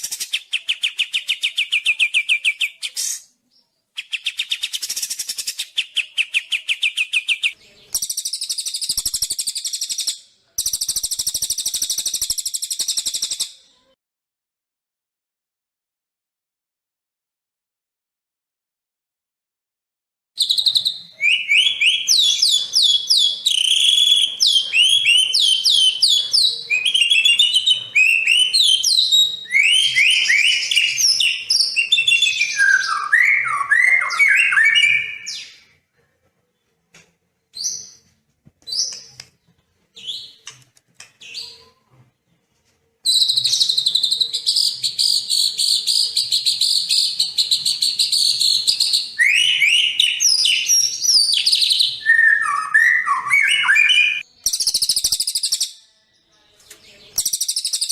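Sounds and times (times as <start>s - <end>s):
songbird whistling and chirping: 0.0s - 13.9s, 20.4s - 35.6s, 43.0s - 56.0s, 56.7s - 57.9s.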